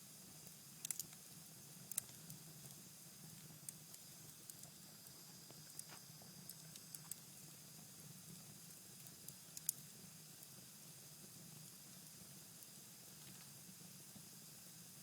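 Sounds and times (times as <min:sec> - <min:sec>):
fire crackling and popping: 0:00.4 - 0:07.4, 0:08.6 - 0:10.6.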